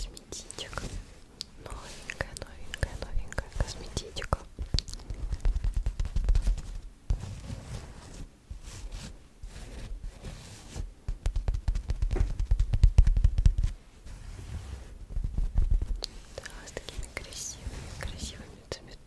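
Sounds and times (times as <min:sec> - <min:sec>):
small clicks and crackles: 0:00.2 - 0:06.8.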